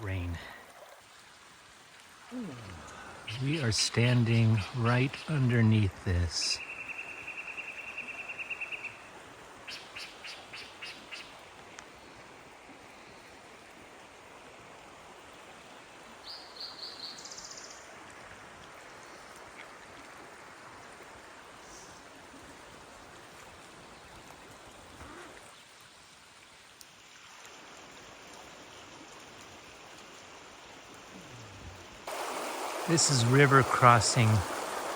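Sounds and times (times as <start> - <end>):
flowing river water: 0.0 - 34.9
birds calling: 2.7 - 9.1, 32.1 - 34.9.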